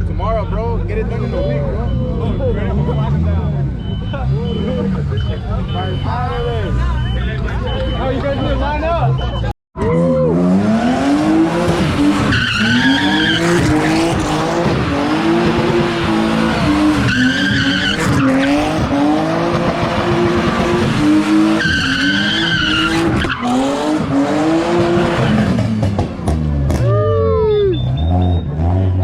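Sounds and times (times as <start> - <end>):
car engine revving: 0.8 - 8.6, 9.8 - 27.0
tyres squealing on pavement: 11.8 - 19.2, 21.4 - 25.8.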